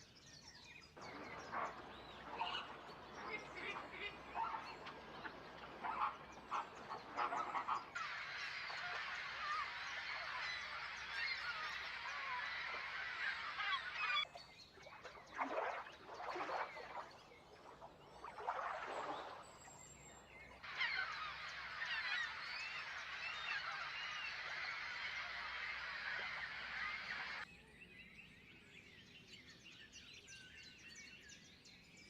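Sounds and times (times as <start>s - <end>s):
flock of birds calling: 0.9s - 14.3s, 15.4s - 27.5s.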